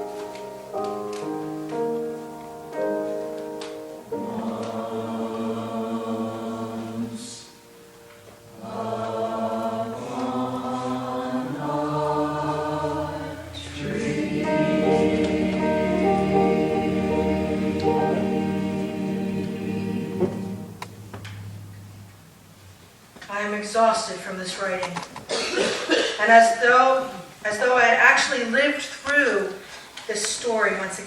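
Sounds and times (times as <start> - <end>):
keyboard accompaniment: 0.0 - 22.8
choir singing: 4.0 - 22.1.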